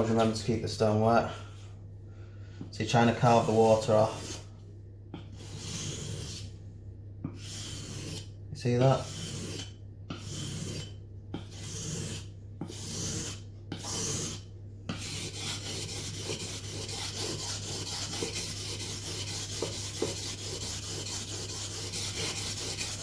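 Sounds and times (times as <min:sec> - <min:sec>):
knife stroked on a whetstone: 0:03.2 - 0:04.5, 0:05.2 - 0:06.5, 0:07.3 - 0:23.0.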